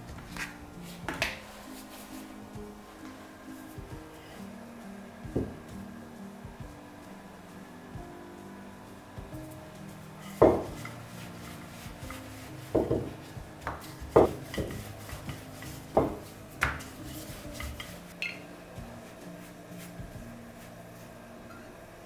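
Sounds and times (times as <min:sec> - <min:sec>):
kitchenware knocking and clinking: 0:10.3 - 0:11.0, 0:12.0 - 0:18.4.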